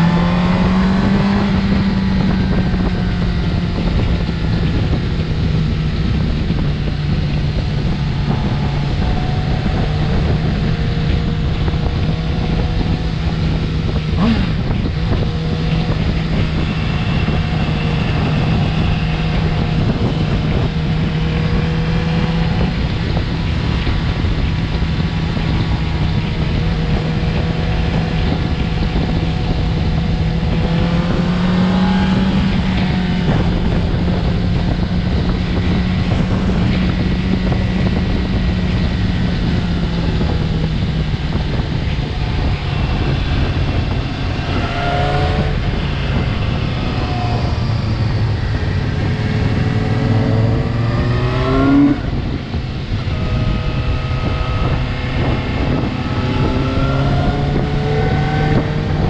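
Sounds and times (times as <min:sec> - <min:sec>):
motorcycle engine cruising: 0:00.0 - 0:59.0
wind rushing over microphone: 0:00.0 - 0:59.0.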